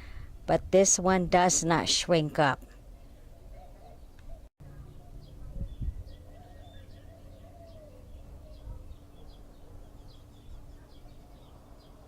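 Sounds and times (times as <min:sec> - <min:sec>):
small birds chirping: 0:02.9 - 0:12.0.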